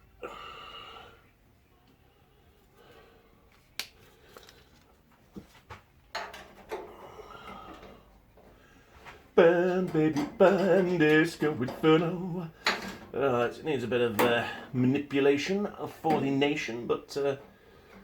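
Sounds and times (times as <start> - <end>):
person speaking: 9.4 - 17.5.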